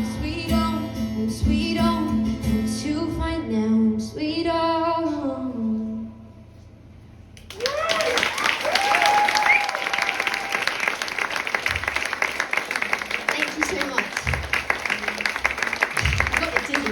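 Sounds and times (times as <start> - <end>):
audience applause: 7.4 - 16.9
whoops and cheers: 7.5 - 11.1.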